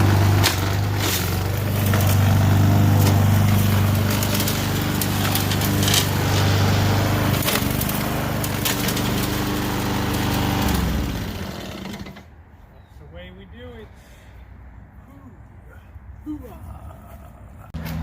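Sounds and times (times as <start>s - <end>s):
cutting machine running: 0.0s - 12.2s
wood cracking and snapping: 4.0s - 6.2s, 7.4s - 9.1s.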